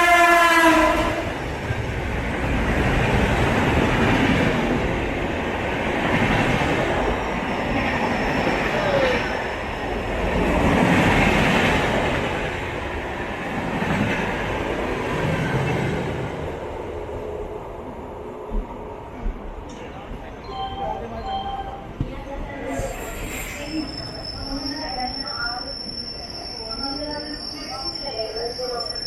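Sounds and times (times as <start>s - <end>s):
train horn blast: 0.0s - 1.3s
train rumbling on rails: 0.0s - 29.0s.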